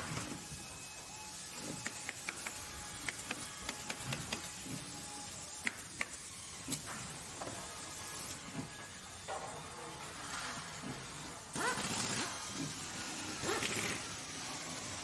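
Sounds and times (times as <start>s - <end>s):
sharp clicks and knocks: 1.7s - 4.6s, 5.6s - 7.1s.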